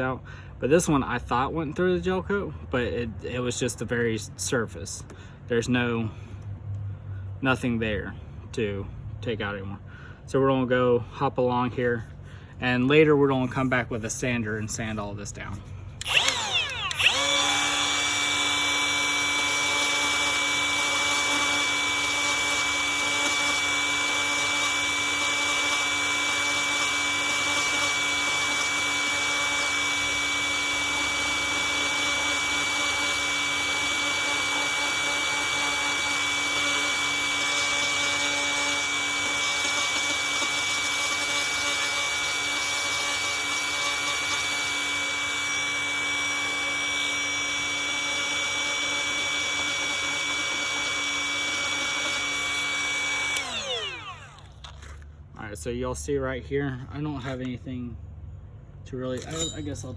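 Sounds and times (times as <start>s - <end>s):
rotary tool high whine: 15.6s - 54.7s.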